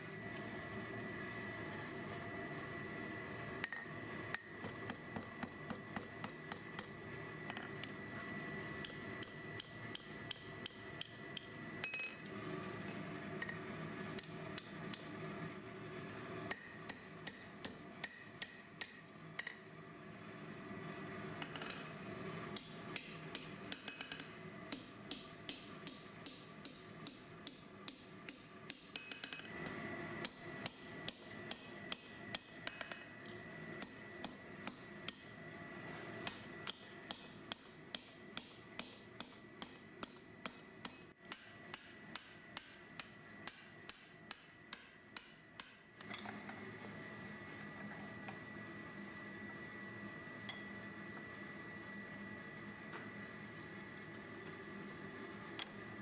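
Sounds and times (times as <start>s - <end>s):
hammer striking steel on anvil: 8.8s - 12.2s, 16.5s - 19.6s, 30.2s - 33.0s, 33.8s - 35.4s, 36.2s - 46.2s.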